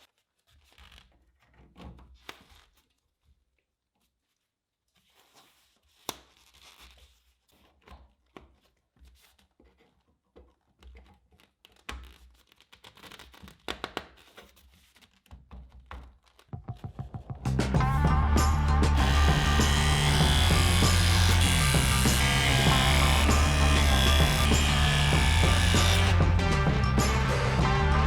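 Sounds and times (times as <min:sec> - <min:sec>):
rustling and crinkling: 0:00.0 - 0:17.2
music: 0:16.6 - 0:28.0
knocks and clicks: 0:19.0 - 0:26.2.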